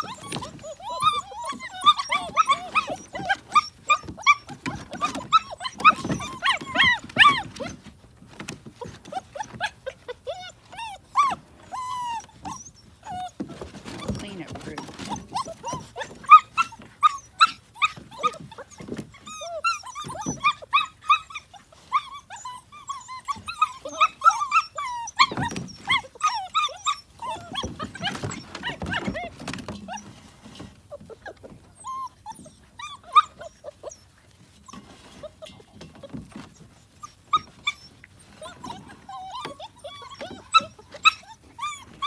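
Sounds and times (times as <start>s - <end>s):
puppies crying and squealing: 0.0s - 42.0s
feeding clicks and smacks: 11.8s - 19.4s.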